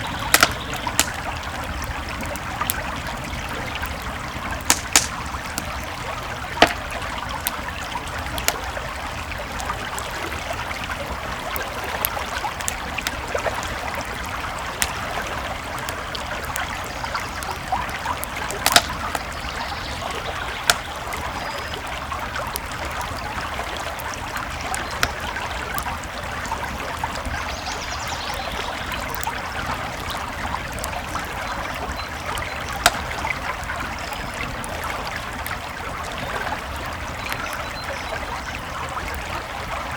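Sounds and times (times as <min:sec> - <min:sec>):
sharp pops from fire: 0:00.0 - 0:10.1, 0:11.6 - 0:21.7, 0:24.0 - 0:26.0, 0:30.7 - 0:33.6
campfire crackling: 0:00.0 - 0:39.9
creek flowing: 0:00.0 - 0:39.9.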